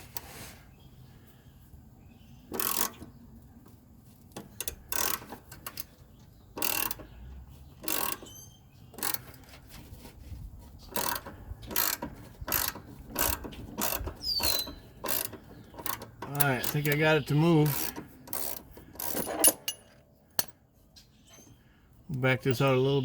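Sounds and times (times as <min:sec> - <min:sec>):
ratchet wrench clicking: 0:02.5 - 0:03.1, 0:04.4 - 0:05.9, 0:06.6 - 0:07.1, 0:07.8 - 0:08.3, 0:09.0 - 0:09.3, 0:10.9 - 0:17.0, 0:17.6 - 0:19.8.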